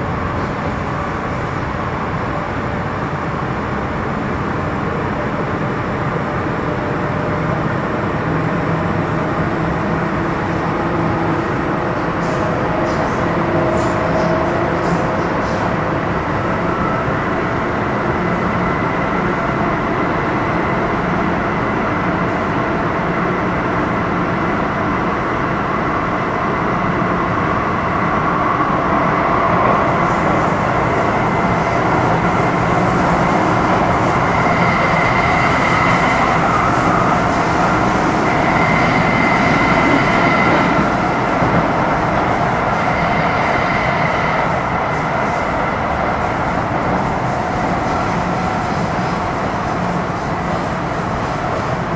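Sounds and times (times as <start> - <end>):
wheel and rail noise: 26.0 - 51.9.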